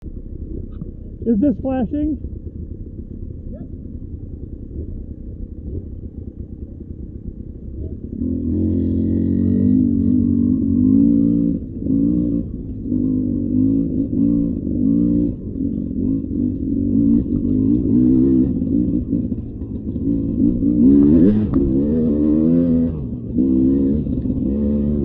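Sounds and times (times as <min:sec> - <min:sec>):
dirt bike engine revving: 0:08.0 - 0:25.0.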